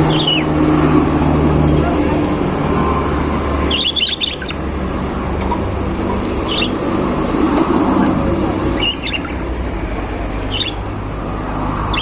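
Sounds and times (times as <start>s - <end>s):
budgerigars chirping: 0.0s - 1.0s, 3.6s - 4.7s, 5.5s - 11.0s.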